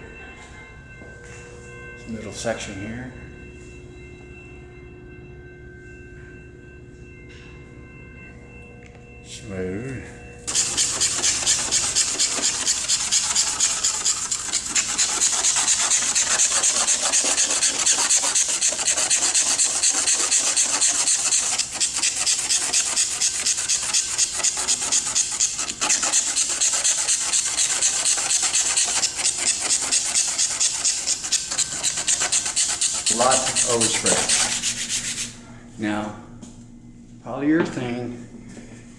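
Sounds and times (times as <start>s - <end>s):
hand rubbing over car paint: 33.0s - 35.4s.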